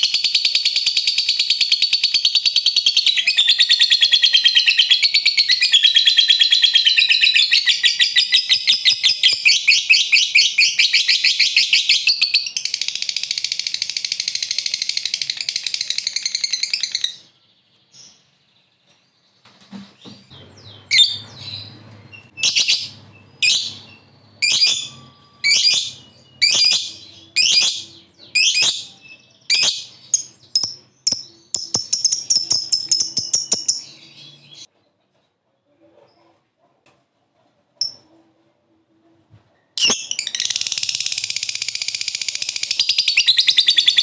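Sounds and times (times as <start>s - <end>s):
lovebird chattering calls: 0.0s - 17.2s, 20.7s - 34.7s.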